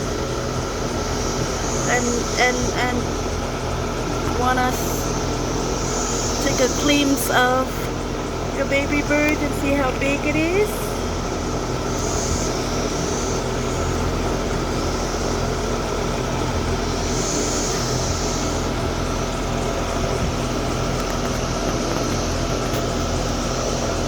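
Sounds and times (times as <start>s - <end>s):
steady mechanical hum: 0.0s - 24.0s
high hiss: 0.1s - 24.0s.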